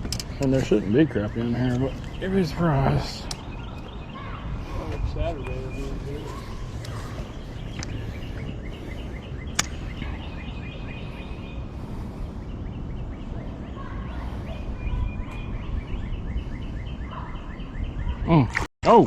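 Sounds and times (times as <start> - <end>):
low rushing background: 0.0 - 18.2
birds chirping: 0.0 - 19.0
sharp click: 9.5 - 9.8.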